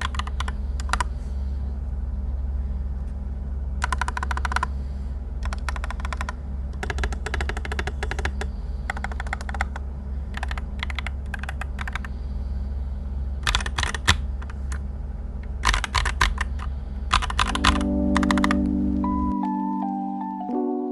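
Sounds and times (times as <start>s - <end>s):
mechanical keyboard typing: 0.0s - 1.1s, 3.8s - 4.7s, 5.4s - 12.1s, 13.4s - 14.8s, 15.6s - 18.8s
steady low hum: 0.0s - 20.3s
mallet-like melody: 17.6s - 20.9s.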